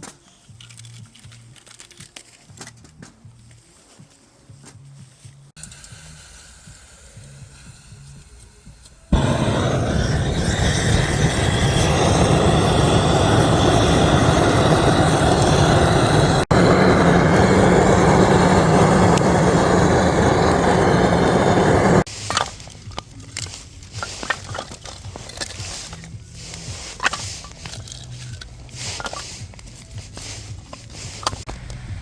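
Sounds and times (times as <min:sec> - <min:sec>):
loud rushing noise: 0:09.1 - 0:22.1
wood fire crackling: 0:09.1 - 0:32.0.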